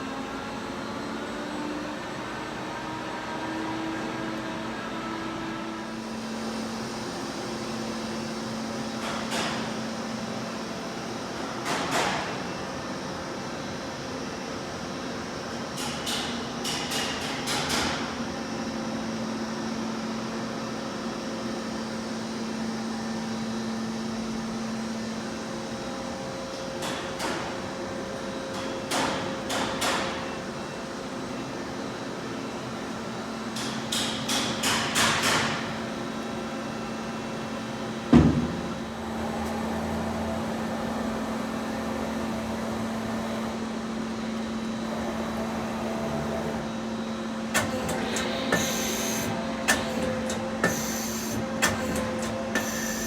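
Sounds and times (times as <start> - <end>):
machine hum: 35.7 - 53.0
heavy clunk: 38.1 - 38.8.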